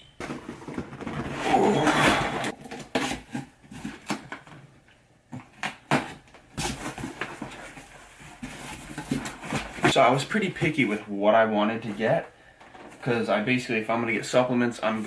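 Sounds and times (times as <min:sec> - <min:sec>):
cardboard rustling and knocking: 0:00.2 - 0:04.6, 0:05.3 - 0:09.9
cardboard tearing and scraping: 0:00.3 - 0:04.3.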